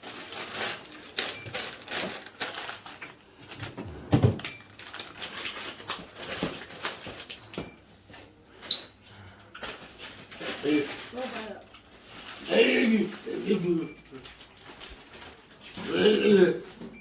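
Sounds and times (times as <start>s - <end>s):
packages and fridge parts knocking: 0.0s - 12.0s
packages rustling: 0.0s - 17.0s.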